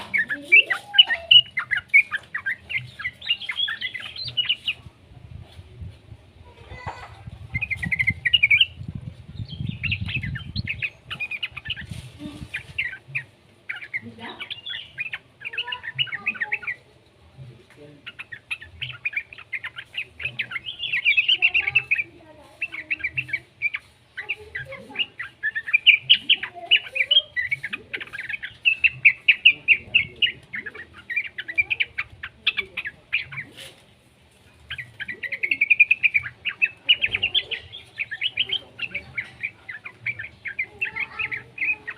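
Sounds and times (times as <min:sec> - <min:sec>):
bulbul chattering calls: 0:00.0 - 0:05.0, 0:06.7 - 0:17.1, 0:17.8 - 0:41.9.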